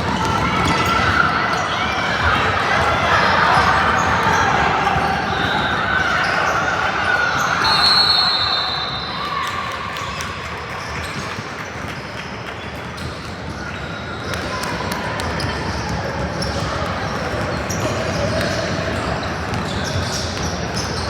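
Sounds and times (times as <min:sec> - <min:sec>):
basketball bouncing on court: 0:00.0 - 0:01.3, 0:13.0 - 0:21.0
echoing murmur of people: 0:00.0 - 0:21.0.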